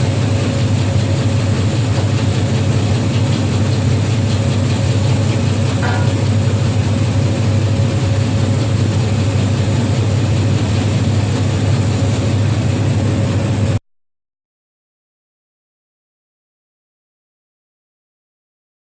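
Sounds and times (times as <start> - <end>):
machine motor humming: 0.0 - 13.8.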